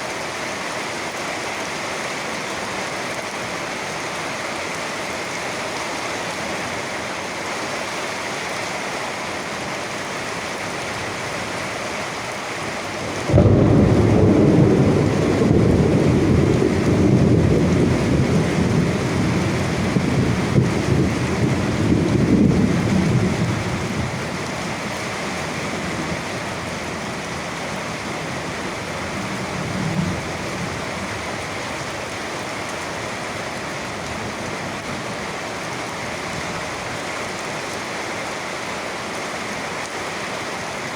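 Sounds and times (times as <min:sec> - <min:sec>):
steady rain: 0:00.0 - 0:40.9
thunder rumbling: 0:13.0 - 0:31.6.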